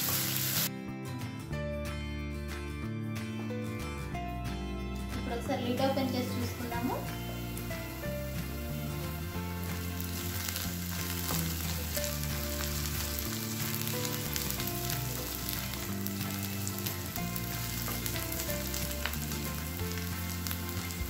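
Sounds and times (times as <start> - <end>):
onions sizzling in oil: 0.0 - 0.7, 6.0 - 21.0.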